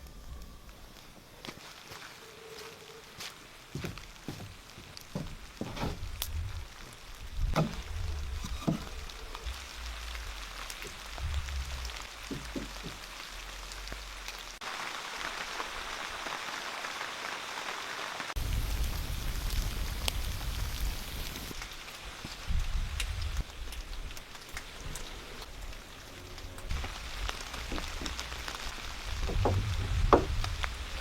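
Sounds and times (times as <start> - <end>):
rain falling: 0.0 - 31.0
low rumble: 6.0 - 14.6, 25.3 - 31.0
knocks: 7.6 - 7.9, 12.3 - 13.0, 29.2 - 30.5.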